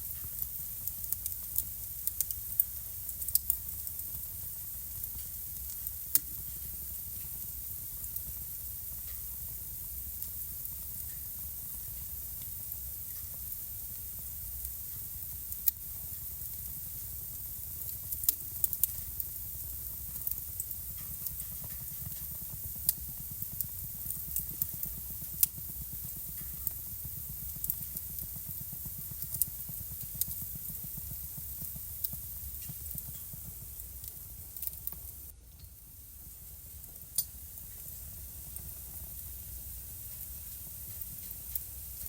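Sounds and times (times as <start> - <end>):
fire flames rumbling: 0.0 - 35.3
fire crackling and popping: 0.0 - 42.0.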